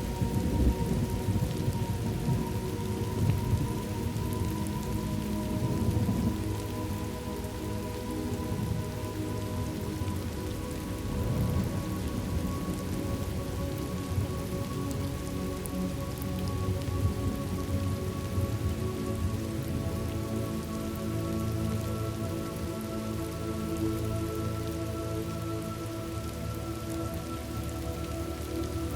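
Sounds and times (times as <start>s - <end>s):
rain falling: 0.0s - 28.9s
soft musical drone: 0.0s - 28.9s
thunder rumbling: 0.2s - 4.5s.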